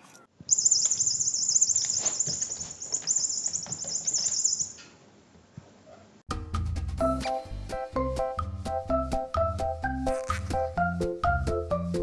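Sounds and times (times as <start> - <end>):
small bird chirping trill: 0.5 - 5.0.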